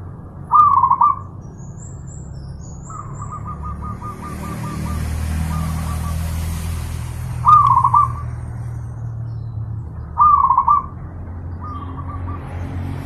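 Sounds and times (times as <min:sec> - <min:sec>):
doves cooing: 0:00.5 - 0:01.3, 0:02.8 - 0:06.2, 0:07.4 - 0:08.3, 0:10.1 - 0:12.6.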